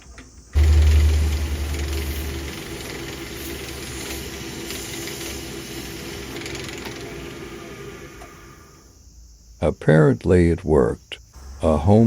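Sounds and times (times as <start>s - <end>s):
lathe hiss: 0.1s - 9.0s
lathe humming: 0.6s - 8.8s.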